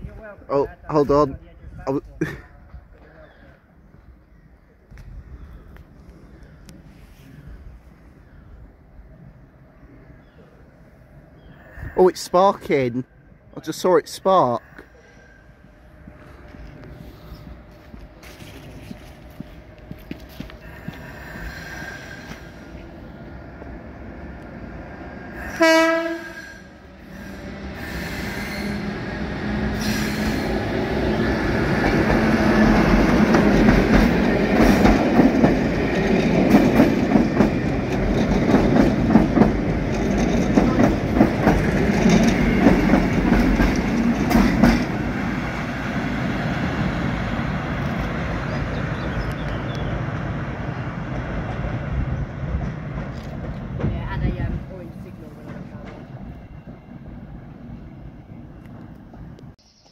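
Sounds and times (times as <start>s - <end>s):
train wheels and motors rumbling: 0.0s - 59.9s
train horn blast: 25.4s - 28.9s.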